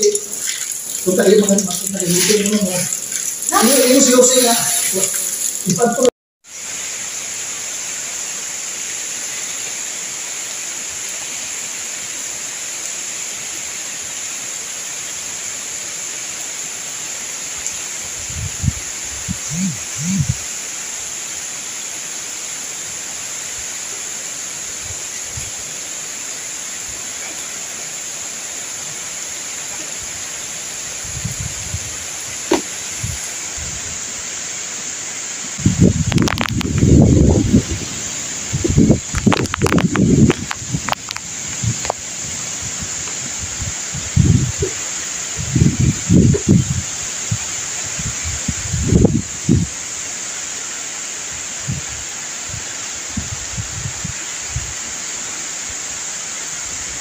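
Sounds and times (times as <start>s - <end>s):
wind and rain through trees: 0.0s - 57.0s
wind buffeting microphone: 18.2s - 20.4s, 31.0s - 34.0s, 35.6s - 49.7s, 51.6s - 54.8s.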